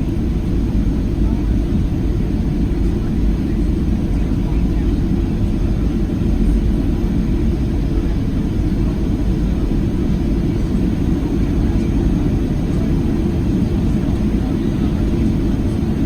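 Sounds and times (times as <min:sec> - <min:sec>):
jet engine cabin rumble: 0:00.0 - 0:16.0.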